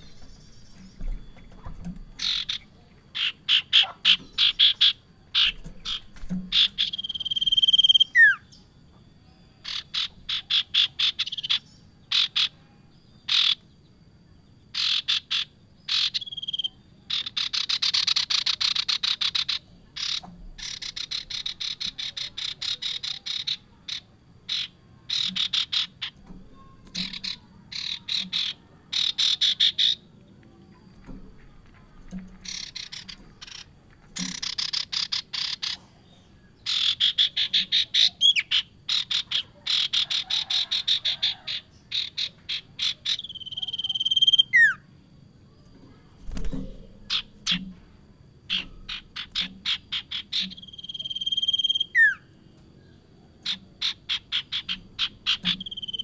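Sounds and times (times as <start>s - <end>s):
buzzing bird rattles: 0.0s - 8.0s, 14.7s - 30.1s, 30.8s - 35.8s, 45.9s - 51.2s
bird singing trills: 0.0s - 56.0s
falling bird whistle: 5.4s - 8.5s, 50.4s - 52.3s.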